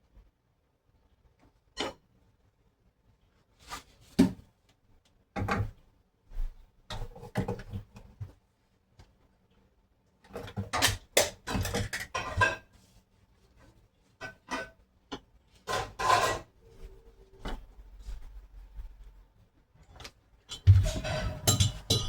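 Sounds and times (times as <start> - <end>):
knocks clicks and scraping: 20.5 - 22.0.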